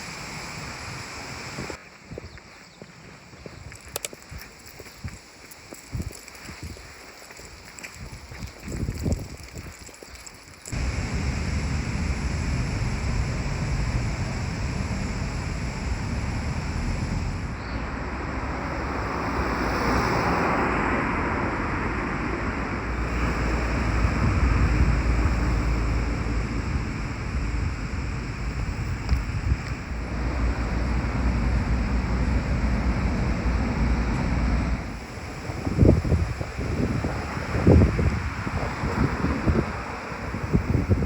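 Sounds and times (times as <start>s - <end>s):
outdoor rushing noise with rumble: 10.7s - 41.0s.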